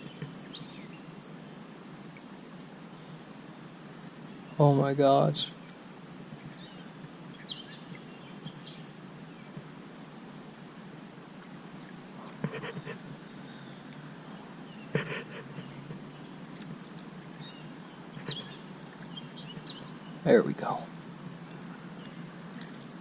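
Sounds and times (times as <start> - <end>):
steady background hiss: 0.0 - 23.0
faint bird chirps: 12.3 - 16.6, 17.3 - 20.8.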